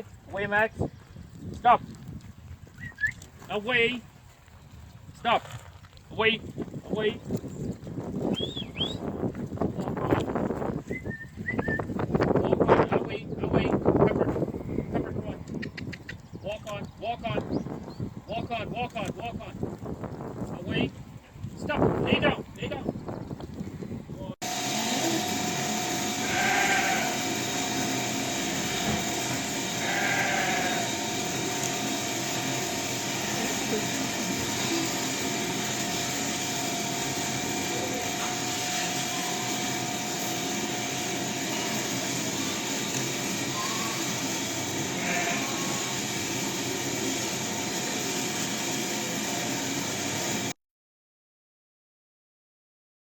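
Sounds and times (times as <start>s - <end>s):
wind rushing on microphone: 0.0s - 2.9s, 6.0s - 24.4s
sheep bleating: 26.2s - 27.3s, 29.7s - 31.0s, 45.0s - 45.9s.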